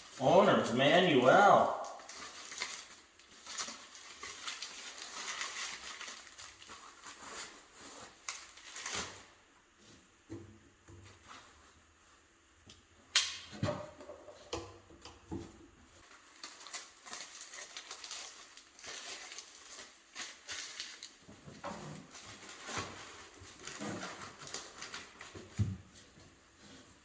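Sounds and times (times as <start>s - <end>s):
rustling and scraping: 2.0s - 10.1s, 16.0s - 27.0s.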